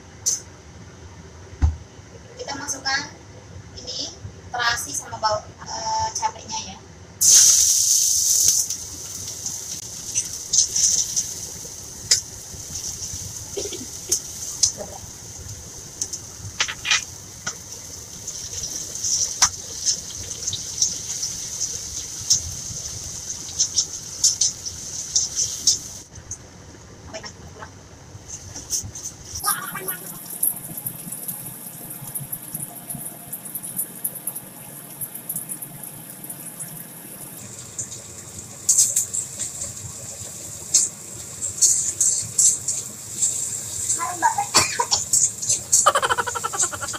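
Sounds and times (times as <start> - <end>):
food sizzling in hot oil: 7.2 - 26.1, 29.4 - 46.9.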